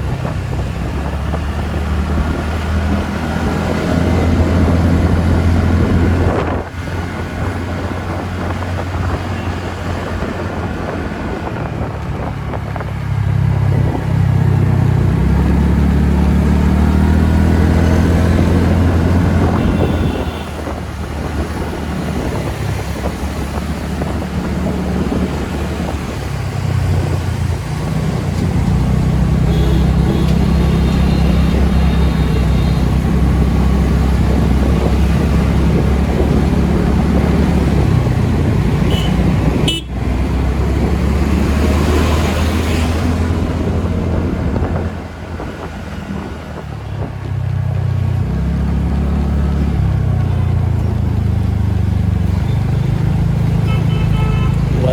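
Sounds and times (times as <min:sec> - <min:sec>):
wind rushing on microphone: 0:00.0 - 0:51.1
scooter engine running: 0:03.4 - 0:41.4
vehicle horn: 0:19.2 - 0:20.8, 0:29.4 - 0:33.1, 0:38.8 - 0:40.1, 0:53.6 - 0:54.9.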